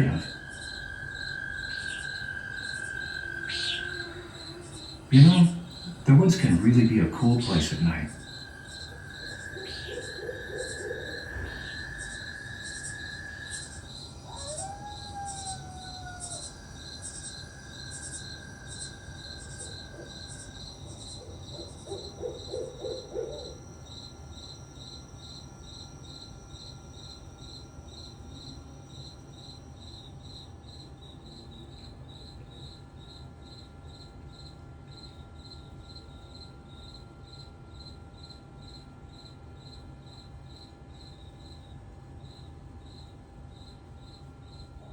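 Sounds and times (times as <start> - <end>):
rising then falling call: 0.0 - 23.8
crickets chirping: 0.0 - 44.9.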